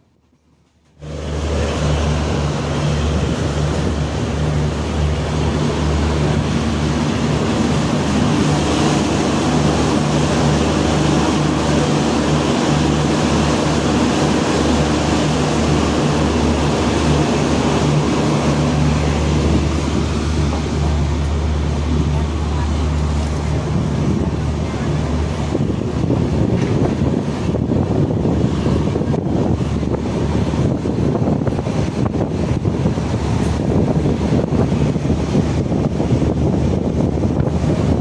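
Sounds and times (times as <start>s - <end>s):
train rushing wind: 0.0s - 38.0s.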